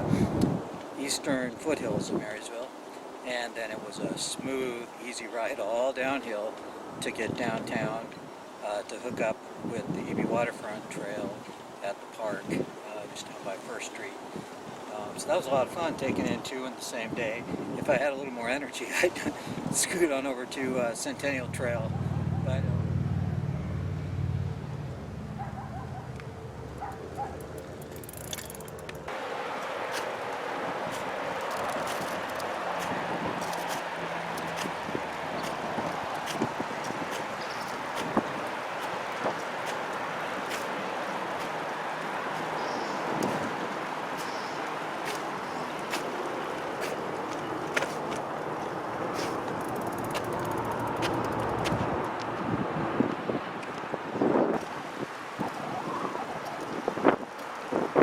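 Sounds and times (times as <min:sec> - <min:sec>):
bicycle tyre and wind noise: 0:00.0 - 0:00.9, 0:21.2 - 0:58.0
bicycle clicks: 0:25.8 - 0:30.1, 0:30.9 - 0:36.5, 0:49.2 - 0:52.3
scattered clicks: 0:26.1 - 0:29.1, 0:49.5 - 0:52.3
fast ticking of freewheel: 0:27.0 - 0:29.1, 0:49.6 - 0:51.6.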